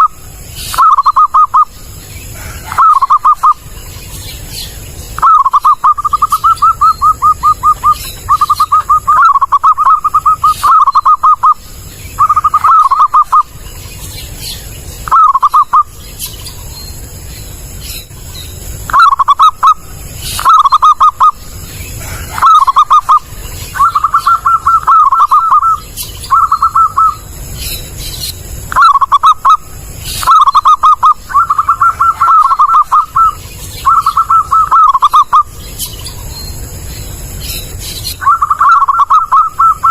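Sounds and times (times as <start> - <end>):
dove cooing: 0.0 - 3.7, 4.4 - 13.6, 15.0 - 15.9, 18.8 - 27.3, 28.7 - 35.5, 38.2 - 39.9.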